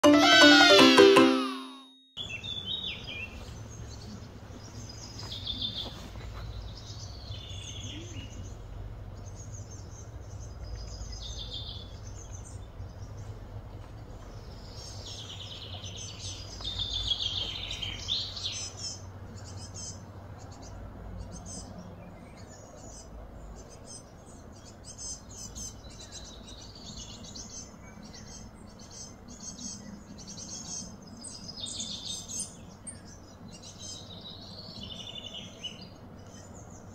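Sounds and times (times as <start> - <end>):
birds chirping and singing: 14.2 - 36.9.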